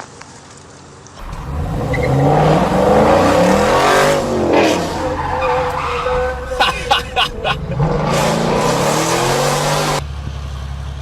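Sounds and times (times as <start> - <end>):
car engine revving hard: 1.2 - 10.0.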